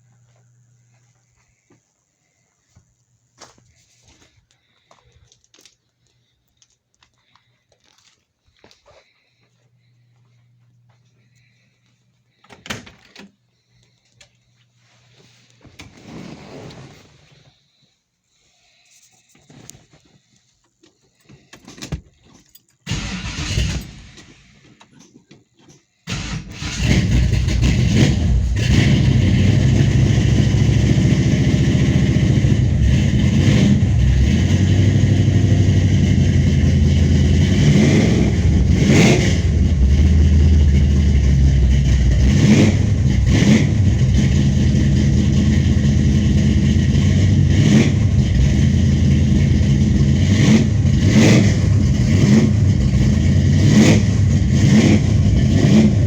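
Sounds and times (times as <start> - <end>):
car engine starting and revving: 22.9 - 24.6, 26.1 - 56.0.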